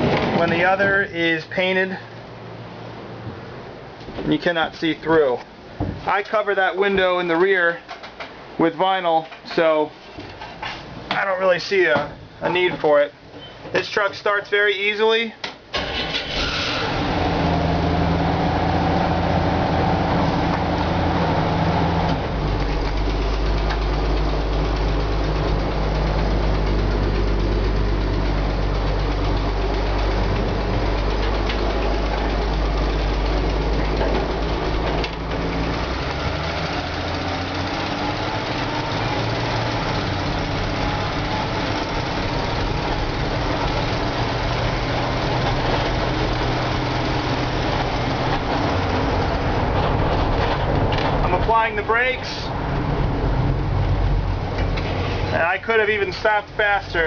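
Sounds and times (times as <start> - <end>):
truck engine running: 15.8 - 57.0.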